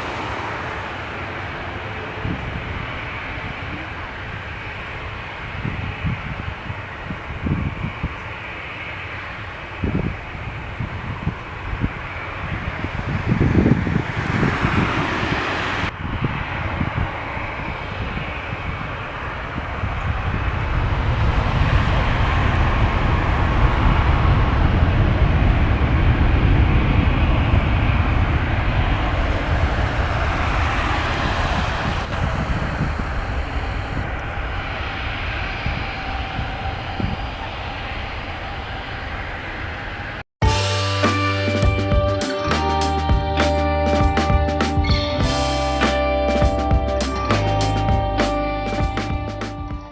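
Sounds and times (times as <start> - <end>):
jet engines rumbling: 0.0 - 49.9.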